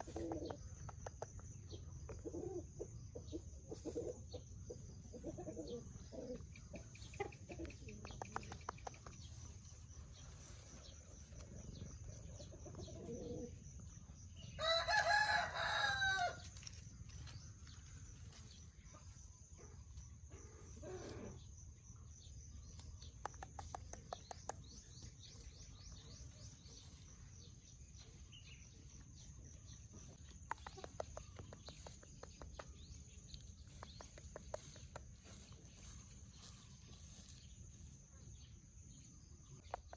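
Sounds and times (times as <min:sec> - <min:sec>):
chickens clucking: 0:00.0 - 0:13.9, 0:29.0 - 0:37.4
rooster crowing: 0:14.6 - 0:16.4.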